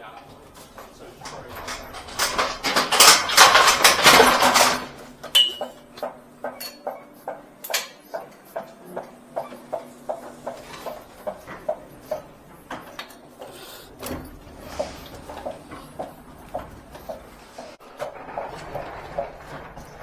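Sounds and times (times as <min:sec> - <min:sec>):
loud clatter: 0:00.1 - 0:06.1, 0:13.9 - 0:20.0.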